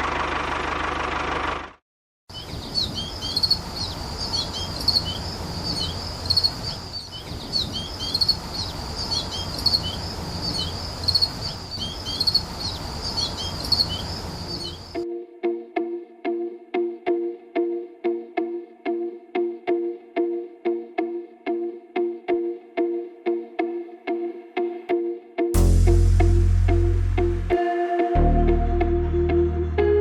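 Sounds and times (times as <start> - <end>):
small birds chirping: 2.3 - 15.0
low steady rumble: 25.6 - 27.6.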